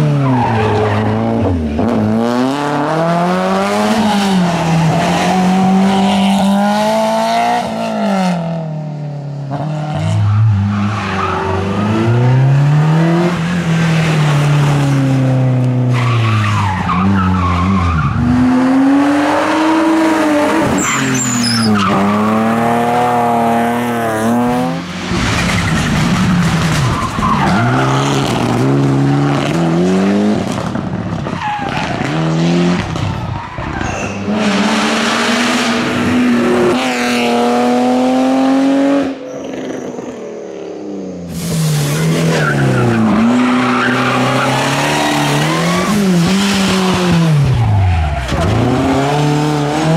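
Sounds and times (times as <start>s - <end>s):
rally car engines revving: 0.0s - 49.9s
tyres squealing: 20.6s - 22.5s.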